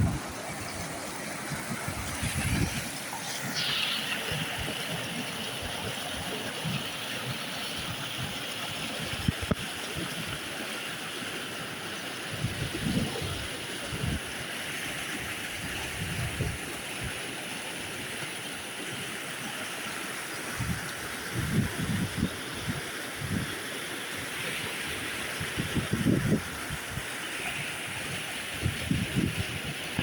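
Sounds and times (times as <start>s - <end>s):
water flowing in a stream: 0.0s - 30.0s
higher steady hiss: 2.1s - 5.6s.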